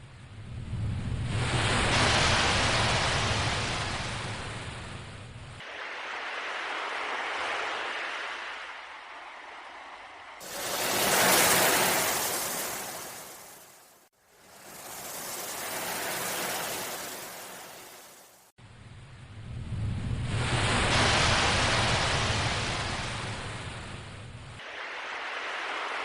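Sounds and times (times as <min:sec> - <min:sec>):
ocean waves surging: 0:05.6 - 0:18.5, 0:24.6 - 0:26.0.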